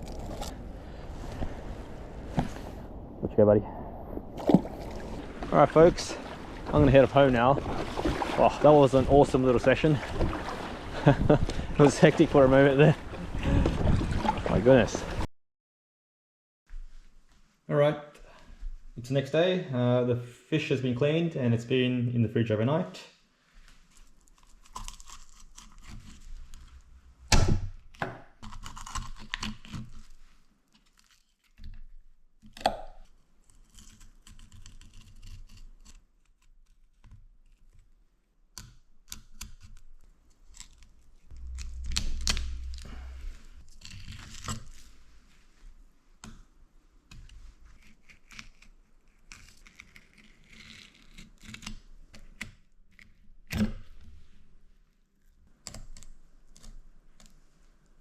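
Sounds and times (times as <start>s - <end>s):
rustling and tearing: 0.0s - 0.7s, 23.6s - 27.3s, 28.4s - 31.9s, 33.1s - 38.0s, 39.4s - 45.6s, 47.1s - 53.3s
sharp knock: 27.3s - 28.2s.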